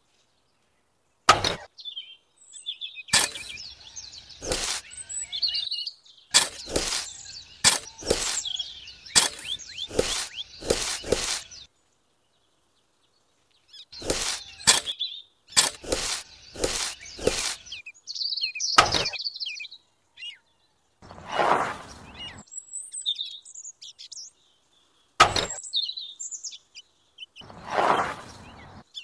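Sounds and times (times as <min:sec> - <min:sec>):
birds chirping: 0:00.0 - 0:29.0
short rushing noise: 0:04.4 - 0:04.9, 0:06.4 - 0:08.6, 0:09.2 - 0:11.6, 0:15.6 - 0:17.7, 0:21.0 - 0:22.4, 0:27.4 - 0:28.8.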